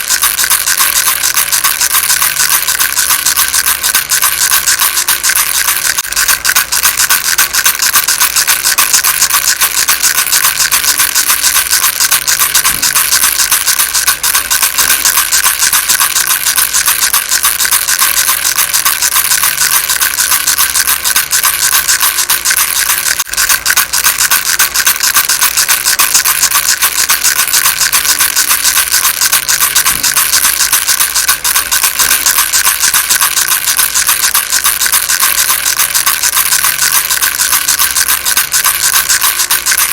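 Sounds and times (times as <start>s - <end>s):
baby rattle shaken fast: 0.0s - 39.9s.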